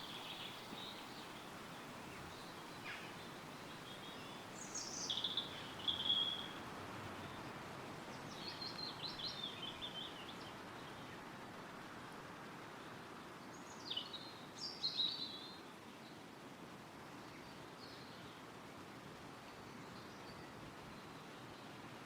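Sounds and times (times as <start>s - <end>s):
wind rustling through trees: 0.0s - 22.0s
songbird singing high notes: 4.0s - 6.6s.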